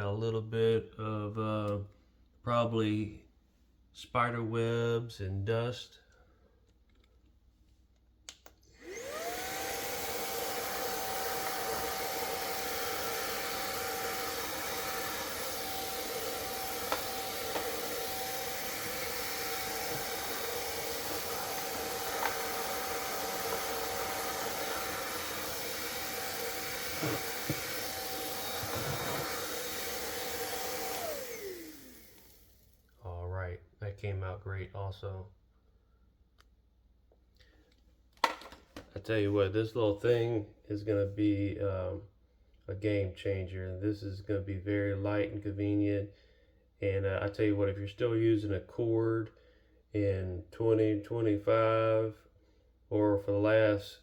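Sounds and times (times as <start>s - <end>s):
vacuum motor humming: 8.7s - 32.7s.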